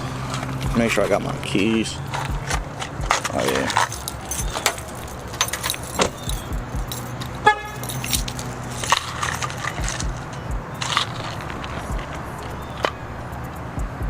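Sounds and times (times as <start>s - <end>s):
car keys jangling: 2.0s - 13.7s
car horn chirp: 7.4s - 8.3s.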